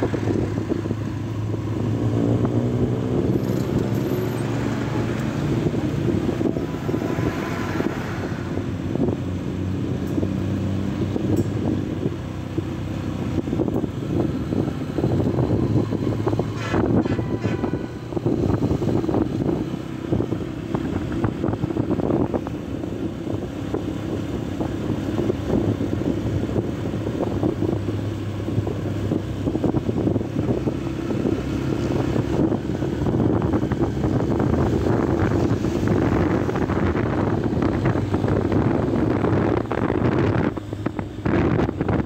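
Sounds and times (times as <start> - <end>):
motorcycle engine at high revs: 0.0 - 7.2
wind buffeting microphone: 0.0 - 42.0.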